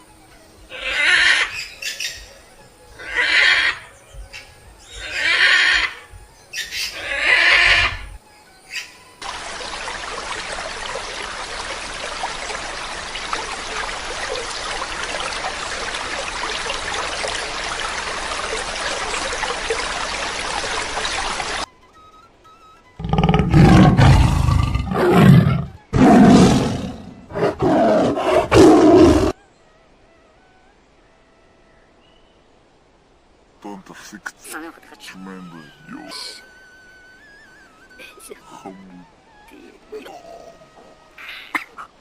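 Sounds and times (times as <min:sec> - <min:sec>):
large animal roaring: 0:23.0 - 0:29.4.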